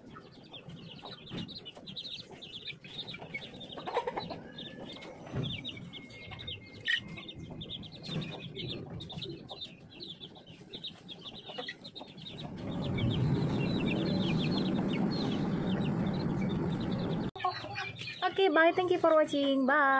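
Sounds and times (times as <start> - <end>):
chicks peeping: 0.0 - 19.4
low rushing noise: 12.4 - 17.3.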